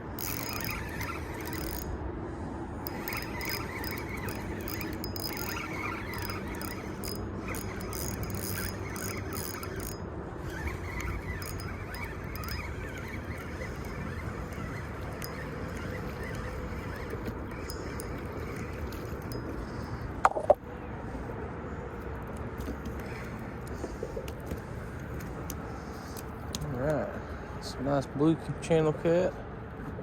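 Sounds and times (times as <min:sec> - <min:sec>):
fishing reel clicking: 0:00.0 - 0:02.0, 0:02.8 - 0:20.0
short squeaky chirps: 0:02.9 - 0:20.0.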